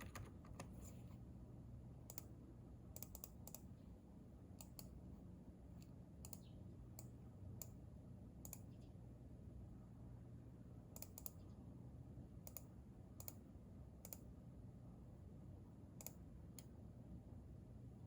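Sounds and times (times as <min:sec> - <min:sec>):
keyboard keystrokes: 0:00.0 - 0:00.8
low room hum: 0:00.0 - 0:18.0.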